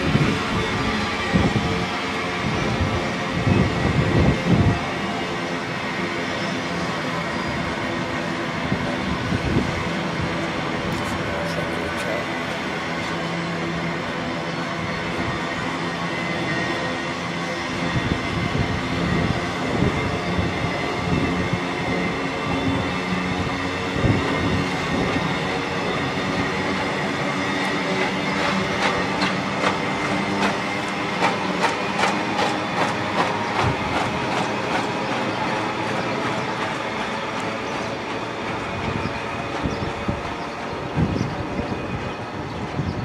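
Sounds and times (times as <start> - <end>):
wheels clacking over rail joints: 25.9 - 41.8
freight wagons rumbling: 26.2 - 42.6.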